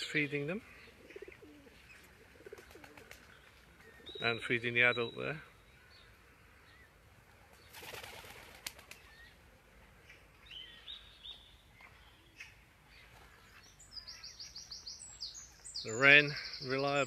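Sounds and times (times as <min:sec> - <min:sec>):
bird wings fluttering: 0:02.0 - 0:03.5, 0:07.4 - 0:09.1
faint high bird chirps: 0:10.0 - 0:17.0.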